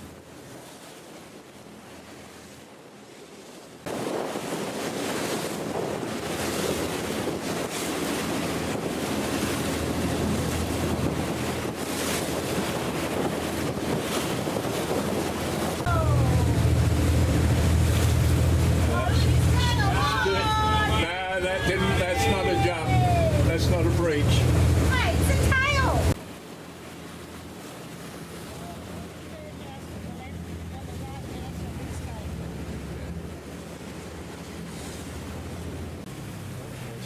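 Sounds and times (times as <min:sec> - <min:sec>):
water washing around boat: 0:00.0 - 0:37.0
wind buffeting microphone: 0:03.8 - 0:26.2
low engine rumble: 0:07.9 - 0:26.2, 0:26.8 - 0:37.0.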